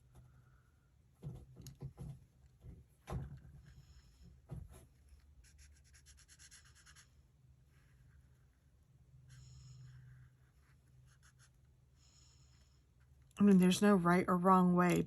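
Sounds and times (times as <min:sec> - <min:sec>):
marker scratching on paper: 0:05.0 - 0:07.1, 0:10.3 - 0:11.6.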